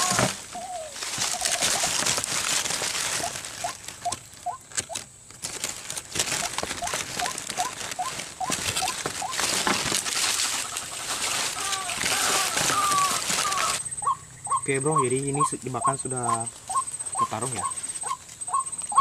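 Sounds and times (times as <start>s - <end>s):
short rising bird calls: 0.0s - 2.1s, 10.4s - 19.0s
rustling undergrowth and leaves: 0.0s - 19.0s.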